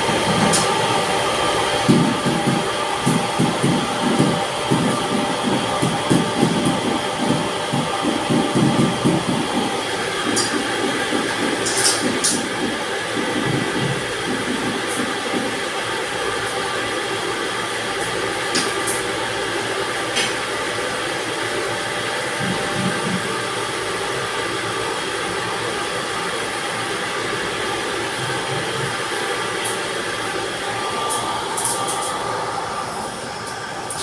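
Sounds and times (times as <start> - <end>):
machinery drone: 22.3 - 34.0.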